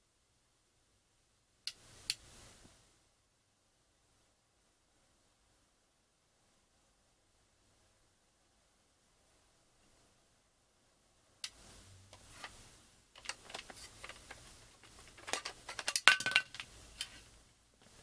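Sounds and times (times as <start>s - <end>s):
plastic clicks and rattling: 13.2s - 17.2s.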